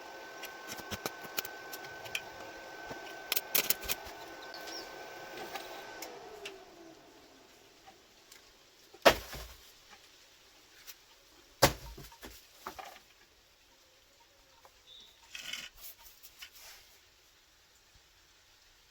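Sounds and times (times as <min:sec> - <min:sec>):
tools rattling and clicking: 0:03.0 - 0:04.2.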